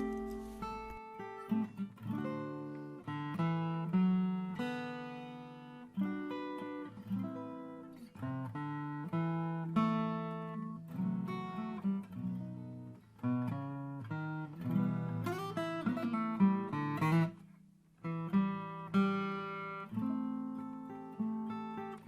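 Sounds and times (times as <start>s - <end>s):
acoustic guitar music: 0.0s - 22.0s.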